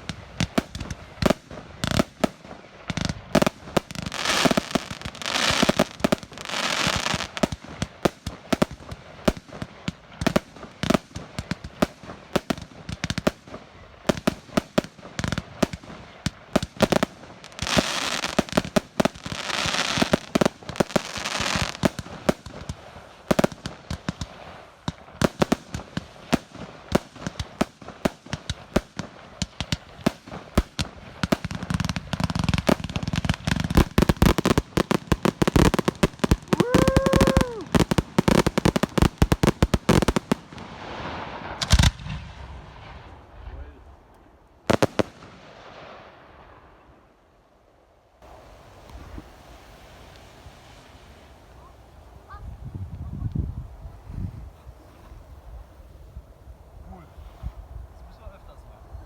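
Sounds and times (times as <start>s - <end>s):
fireworks bangs: 0.0s - 43.9s, 44.6s - 46.8s
fireworks crackling and hissing: 0.0s - 59.0s.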